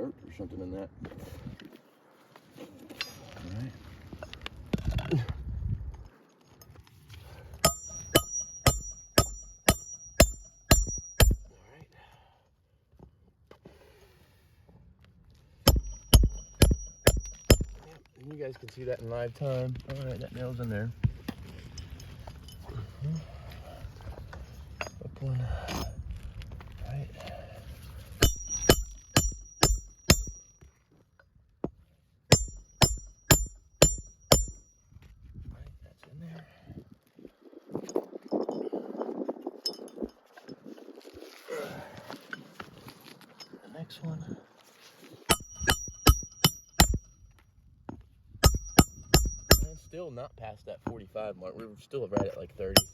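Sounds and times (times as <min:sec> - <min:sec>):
hammer striking metal tool: 0:07.6 - 0:11.5, 0:15.7 - 0:17.8, 0:28.2 - 0:30.6, 0:32.3 - 0:34.7, 0:45.3 - 0:47.1, 0:48.4 - 0:49.9, 0:52.2 - 0:52.9.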